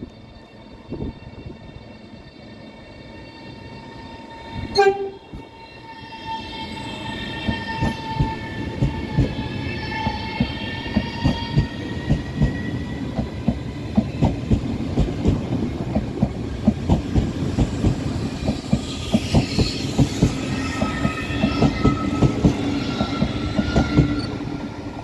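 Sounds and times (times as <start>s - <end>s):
train whine: 0.0s - 25.0s
train horn blast: 4.7s - 5.4s.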